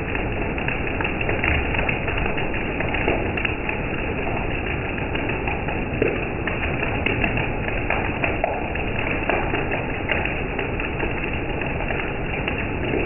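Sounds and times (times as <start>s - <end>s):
raindrops tapping a surface: 0.0s - 13.0s.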